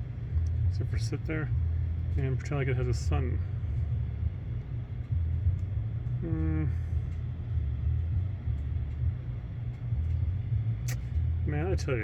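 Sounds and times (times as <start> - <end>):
low rumbling background noise: 0.0 - 12.0
man humming: 6.2 - 6.9.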